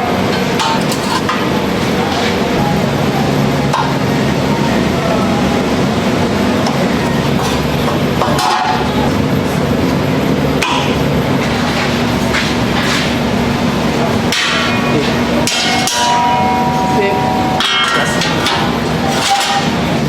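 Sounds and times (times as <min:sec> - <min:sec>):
workshop hum: 0:00.0 - 0:20.0
struck metal ringing: 0:14.1 - 0:20.0
hammering on steel: 0:14.2 - 0:19.9.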